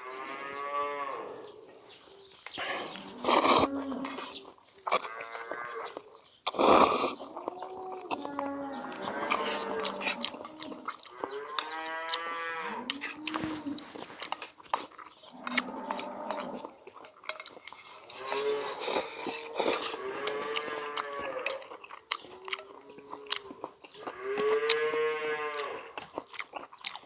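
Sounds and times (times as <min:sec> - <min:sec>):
cattle mooing: 0:02.6 - 0:04.2, 0:07.4 - 0:13.9, 0:19.4 - 0:21.6, 0:24.1 - 0:26.0.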